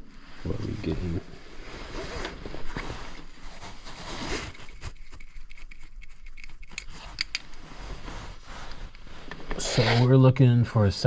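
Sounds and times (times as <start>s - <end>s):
clicks and scrapes of handling: 1.9s - 10.2s.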